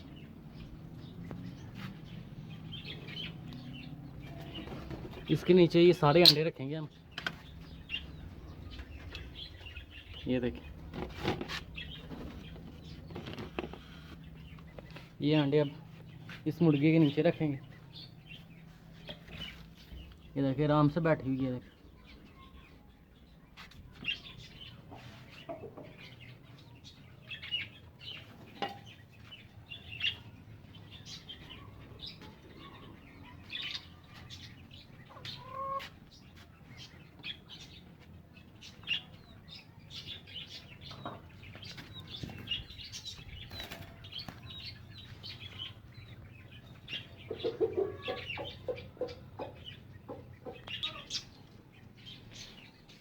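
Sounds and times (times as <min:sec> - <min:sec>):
birds chirping: 0:00.0 - 0:53.0
low rapid clucks: 0:47.2 - 0:50.8.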